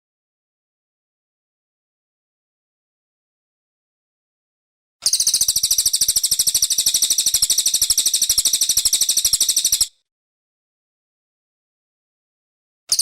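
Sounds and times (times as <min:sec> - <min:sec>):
songbird high-pitched trill: 0:05.0 - 0:10.0.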